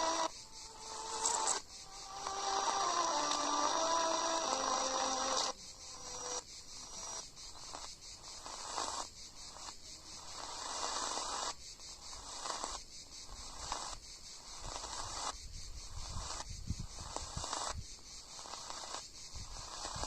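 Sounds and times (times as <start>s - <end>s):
radio hiss and static: 0.0s - 9.0s.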